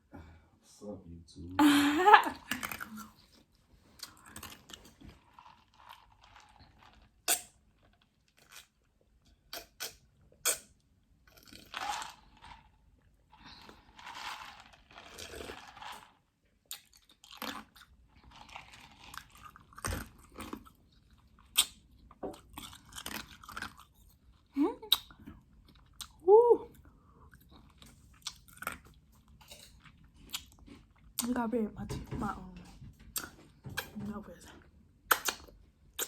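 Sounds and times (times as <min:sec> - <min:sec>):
wet chewing: 0:02.4 - 0:08.8, 0:16.7 - 0:26.2, 0:27.3 - 0:31.4, 0:33.0 - 0:34.0, 0:35.1 - 0:36.0
crunching chips: 0:11.3 - 0:24.2.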